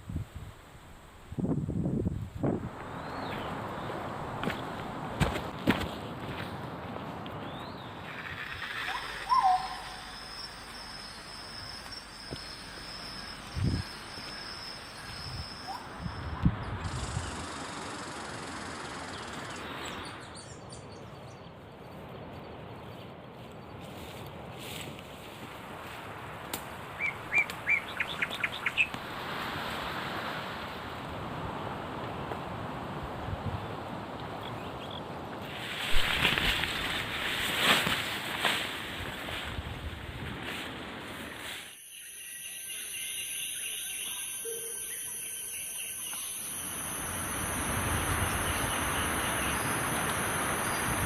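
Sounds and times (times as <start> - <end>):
background hiss: 7.1 - 20.5, 35.4 - 51.0
bird calling: 7.5 - 16.3, 27.0 - 28.9
high insect drone: 8.0 - 20.0, 41.2 - 51.0.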